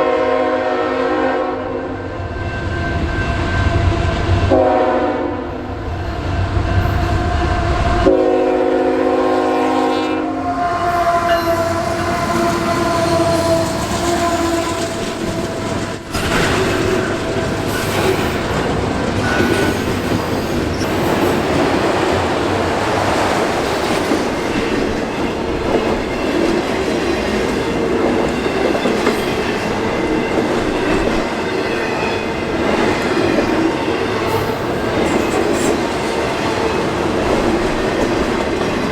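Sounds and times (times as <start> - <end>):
locomotive air horn: 0.0 - 1.9, 4.5 - 5.6, 8.0 - 18.0
locomotive engine: 10.4 - 38.9.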